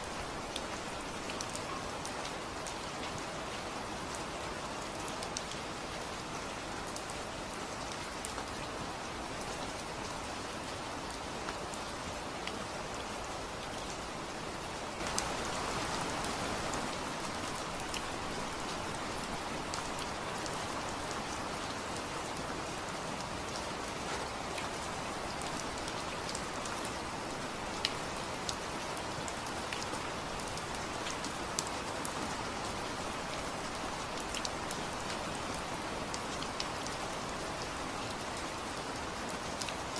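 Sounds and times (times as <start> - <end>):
steady rain falling: 0.0 - 39.9
raindrops ticking on a surface: 15.0 - 22.5.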